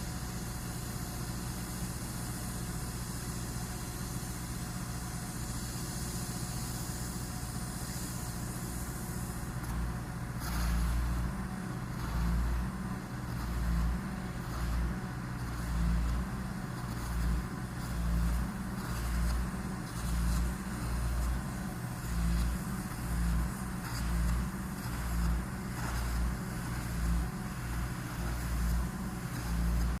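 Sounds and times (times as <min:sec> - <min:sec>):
machinery engine running: 0:08.3 - 0:30.0
low throb: 0:09.6 - 0:30.0.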